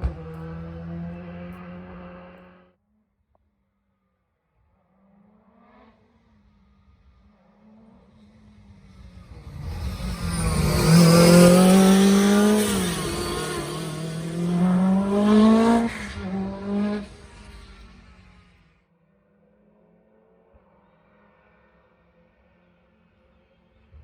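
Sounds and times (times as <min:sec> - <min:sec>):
rally car engine passing at full throttle: 0:00.0 - 0:02.7, 0:05.1 - 0:18.7.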